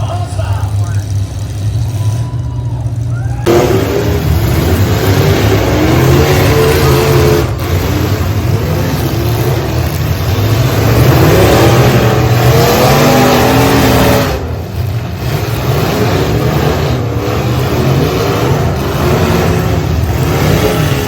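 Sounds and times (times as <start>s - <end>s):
truck engines revving: 0.0s - 21.0s.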